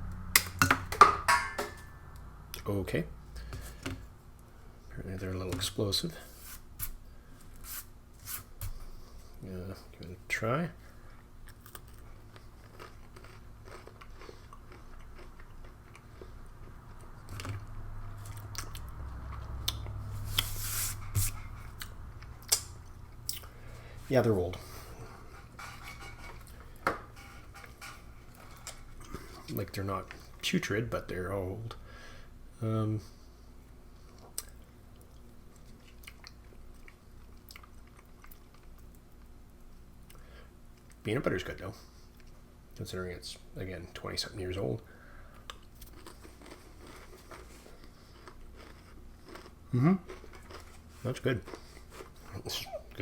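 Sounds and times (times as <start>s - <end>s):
cracker crunching: 11.4s - 23.9s, 45.4s - 52.5s.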